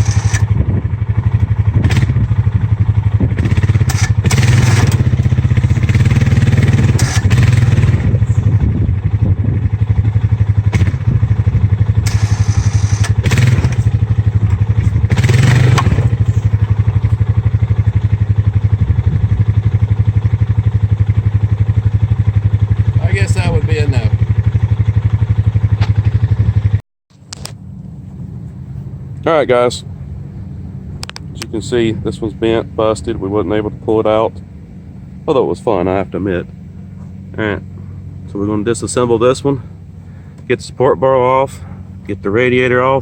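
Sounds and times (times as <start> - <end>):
engine revving or clatter: 0.0 - 9.2, 9.8 - 17.4
vehicle engine straining under load: 0.0 - 43.0.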